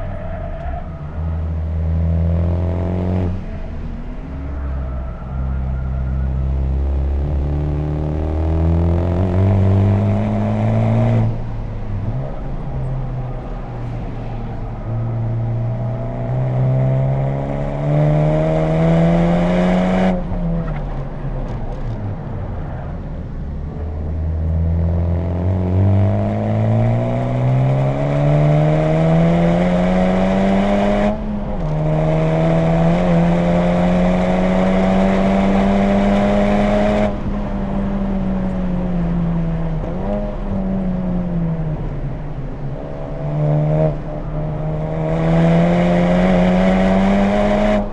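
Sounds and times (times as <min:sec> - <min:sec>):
car engine revving hard: 0:15.8 - 0:20.2, 0:24.6 - 0:37.4, 0:43.1 - 0:47.9.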